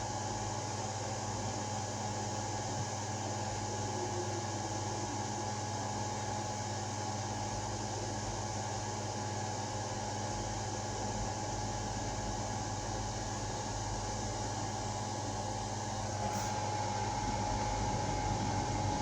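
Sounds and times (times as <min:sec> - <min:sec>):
machine hum: 0:13.5 - 0:19.0.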